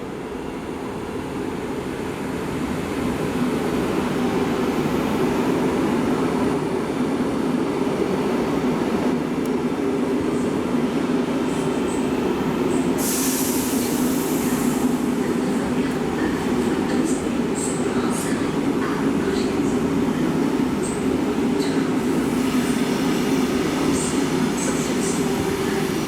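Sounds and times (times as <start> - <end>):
electric train rumbling and humming: 0.0 - 26.0
loud hiss: 13.0 - 15.0.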